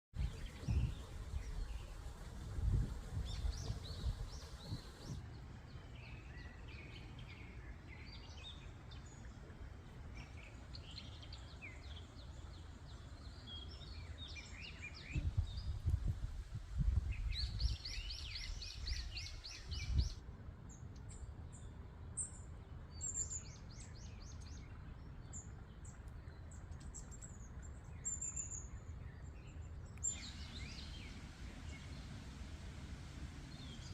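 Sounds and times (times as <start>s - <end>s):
small birds chirping: 0.1s - 9.4s, 16.8s - 33.9s
low rumble in gusts: 0.2s - 5.8s, 15.0s - 20.2s, 30.2s - 33.9s.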